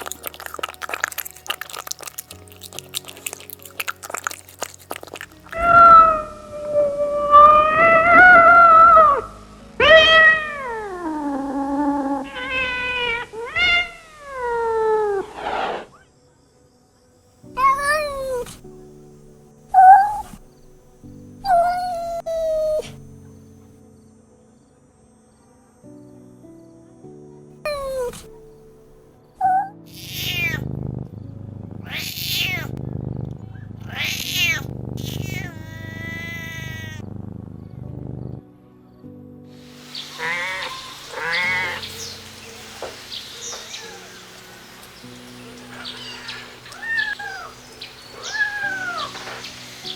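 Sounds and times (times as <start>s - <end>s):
kitten meowing: 0.0s - 9.2s, 9.8s - 14.9s, 17.6s - 18.6s, 19.8s - 20.4s, 21.5s - 23.0s, 27.7s - 28.3s, 29.4s - 30.6s, 31.8s - 32.8s, 33.9s - 37.0s, 40.0s - 44.3s, 45.4s - 49.5s.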